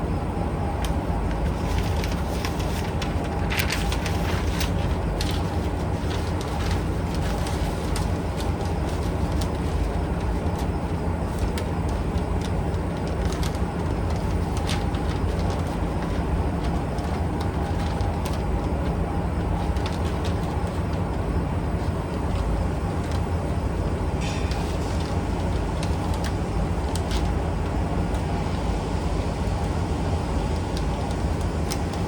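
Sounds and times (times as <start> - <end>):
low mechanical rumble: 0.0 - 32.0.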